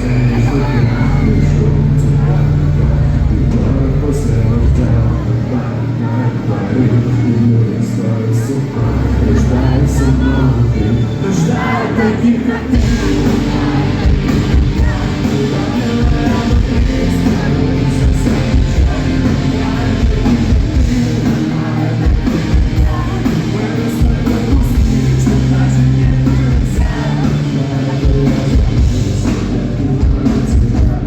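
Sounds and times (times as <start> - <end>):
guitars: 0.0 - 31.0
live rock band: 0.0 - 31.0
person singing: 0.0 - 31.0
drum kit: 11.4 - 31.0.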